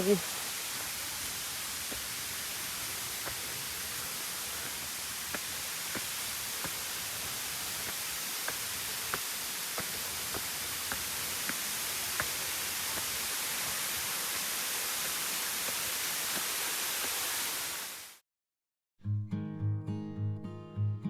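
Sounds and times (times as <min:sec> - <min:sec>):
light footsteps: 0:00.0 - 0:13.9
waterfall rushing hiss: 0:00.0 - 0:18.2.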